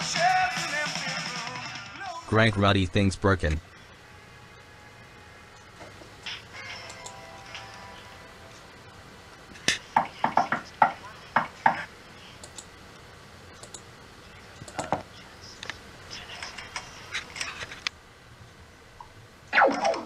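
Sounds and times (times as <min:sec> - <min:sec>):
knocking on a door: 0:10.0 - 0:11.8.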